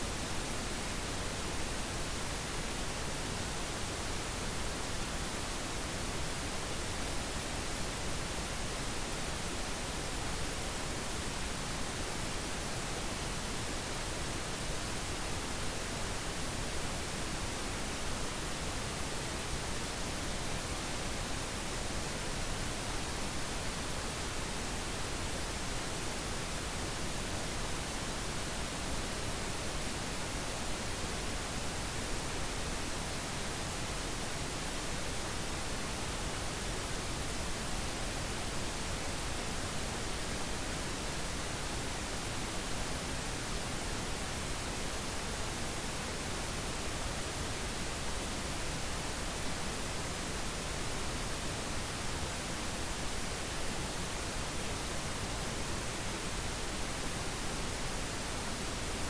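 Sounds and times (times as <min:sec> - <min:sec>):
pink noise hiss: 0:00.0 - 0:59.0.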